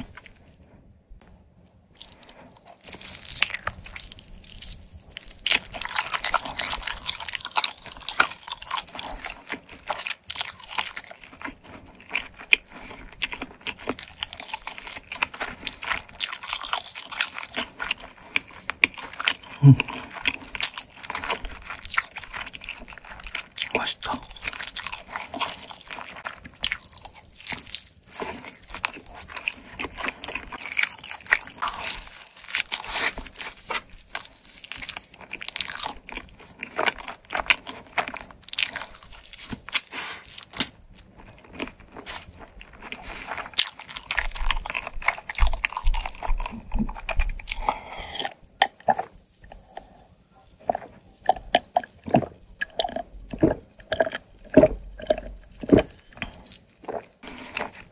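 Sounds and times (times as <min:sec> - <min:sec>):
chewing with crunchy bites: 0:00.0 - 0:57.9
wet mouth sounds: 0:15.6 - 0:25.9, 0:41.8 - 0:57.9.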